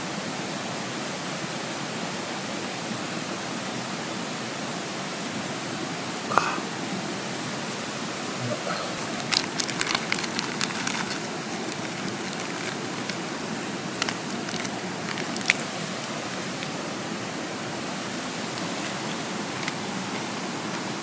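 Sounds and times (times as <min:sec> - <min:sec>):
mountain stream rushing: 0:00.0 - 0:21.0
sharp crackles and pops: 0:09.0 - 0:16.8.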